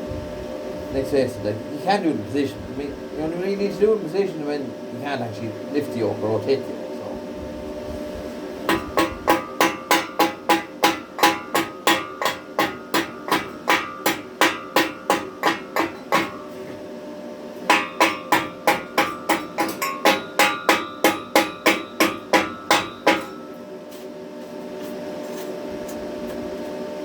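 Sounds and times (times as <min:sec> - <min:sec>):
hammer striking steel: 0:08.7 - 0:16.7, 0:17.7 - 0:23.6.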